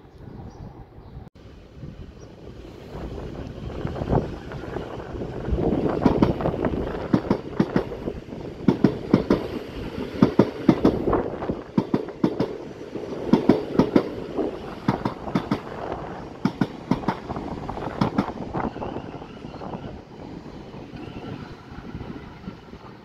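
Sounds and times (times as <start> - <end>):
train rumble: 0.0 - 23.0
wheels clacking over rail joints: 4.3 - 19.6.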